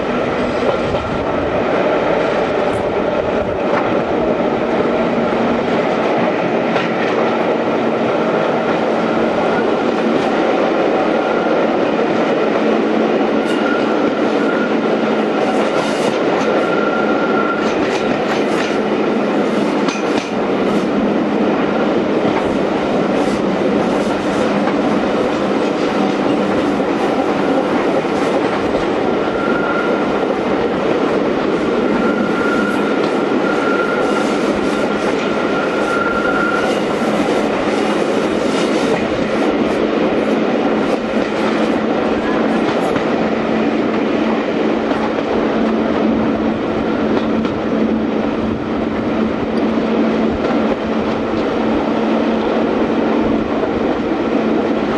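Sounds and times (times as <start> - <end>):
rumble of wheels on rail: 0.0 - 54.9
faint high squeal: 32.0 - 34.2.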